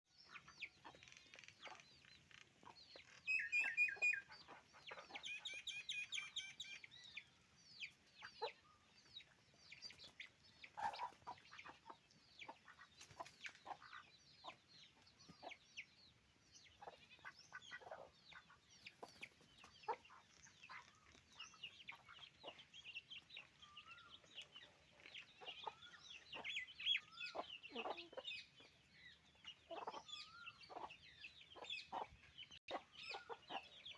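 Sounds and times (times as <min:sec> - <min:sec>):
chickens clucking and calling: 0:00.1 - 0:33.9.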